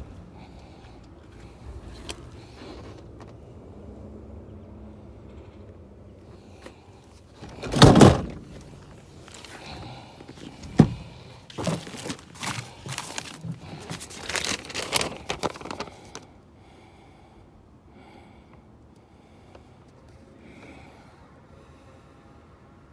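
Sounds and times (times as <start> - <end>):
clunks and rustling: 0.0 - 3.8, 6.6 - 16.2
loud thump: 7.5 - 8.7, 10.7 - 11.1.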